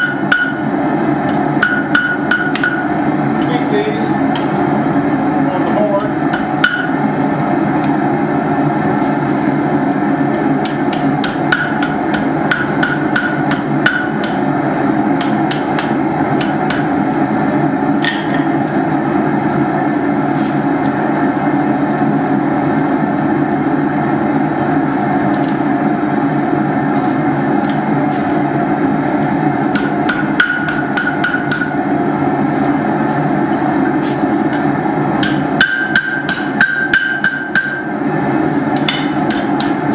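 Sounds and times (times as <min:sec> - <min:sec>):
hammer striking steel on anvil: 0:00.0 - 0:00.7, 0:01.3 - 0:02.9, 0:06.3 - 0:07.0, 0:10.6 - 0:14.4, 0:15.2 - 0:16.9, 0:29.7 - 0:31.8, 0:35.2 - 0:37.9, 0:38.8 - 0:39.8.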